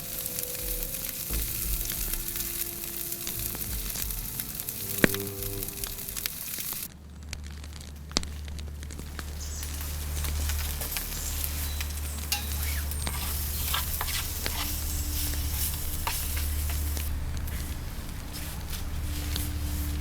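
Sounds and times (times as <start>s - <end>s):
food sizzling in a pan: 0.0s - 6.9s, 9.4s - 17.6s
fire crackling pops: 0.0s - 20.0s.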